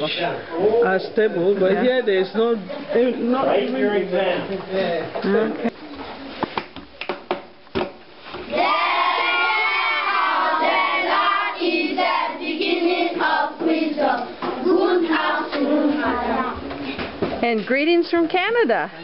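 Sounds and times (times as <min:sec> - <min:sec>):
children singing in unison: 0:08.5 - 0:16.7.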